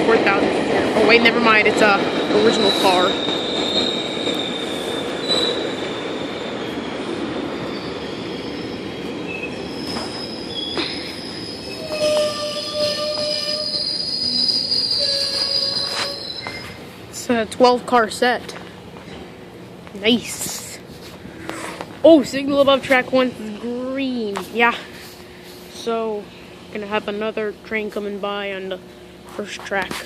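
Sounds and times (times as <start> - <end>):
train wheels on rails: 0.0 - 25.9
high-pitched wheel squeal: 2.5 - 5.8, 7.6 - 16.8.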